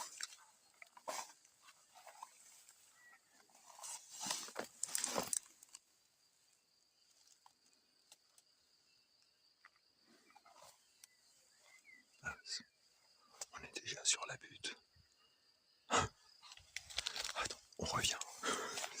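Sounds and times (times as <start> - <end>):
dry grass rustling: 0.0 - 5.9.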